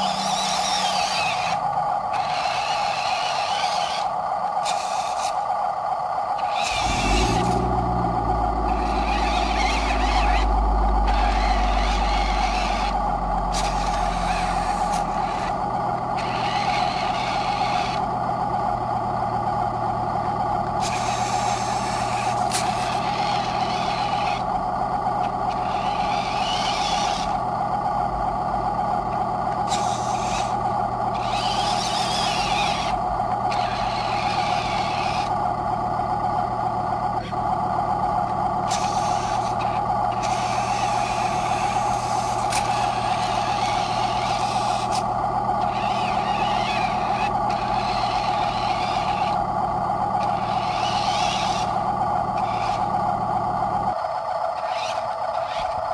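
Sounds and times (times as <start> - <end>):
motor whine: 0.0 - 55.9
low rumble: 6.7 - 26.6.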